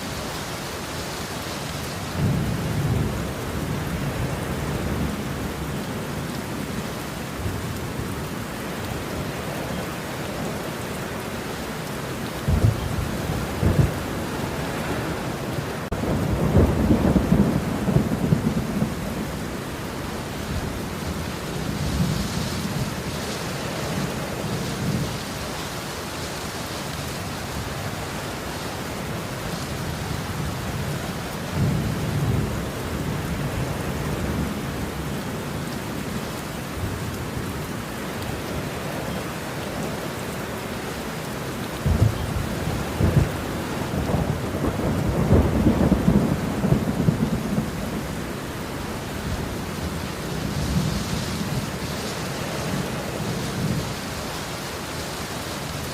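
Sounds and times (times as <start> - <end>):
steady rain: 0.0 - 55.9
rolling thunder: 12.4 - 19.6, 41.8 - 51.8.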